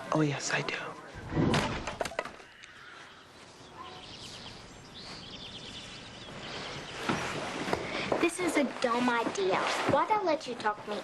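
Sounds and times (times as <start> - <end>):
outdoor background noise: 0.0 - 11.0
birds chirping: 1.9 - 9.5.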